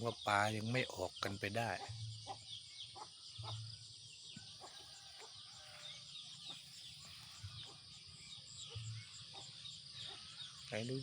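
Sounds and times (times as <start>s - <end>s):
birds chirping: 0.0s - 11.0s
chickens clucking: 1.6s - 3.8s.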